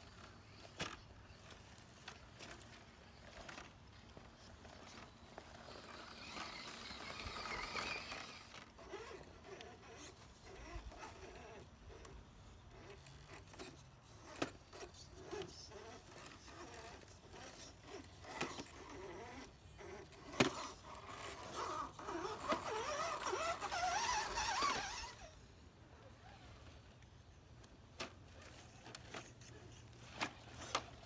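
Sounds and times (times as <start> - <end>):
electric motor whining: 4.6 - 12.2, 14.2 - 25.4.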